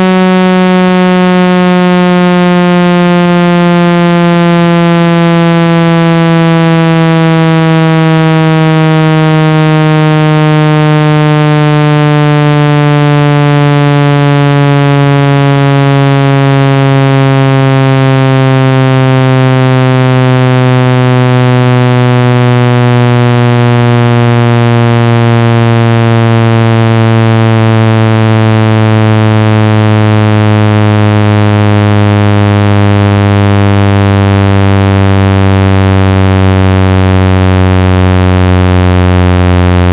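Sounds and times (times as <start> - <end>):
synthesized buzzing tone gliding downward: 0.0 - 39.9.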